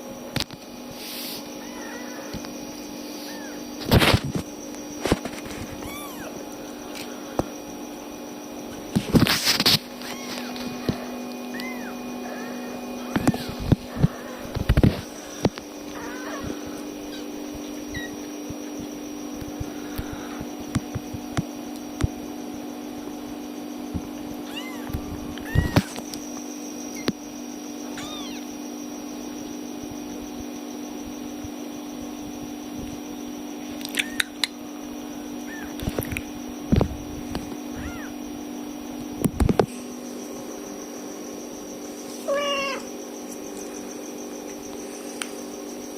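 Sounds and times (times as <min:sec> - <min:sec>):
steady low hum: 0:00.0 - 0:45.9
kittens mewing: 0:01.3 - 0:04.2, 0:05.6 - 0:06.5, 0:09.5 - 0:19.0, 0:24.4 - 0:26.1, 0:27.8 - 0:28.6, 0:33.8 - 0:34.5, 0:35.4 - 0:36.0, 0:37.6 - 0:38.2, 0:42.2 - 0:43.0.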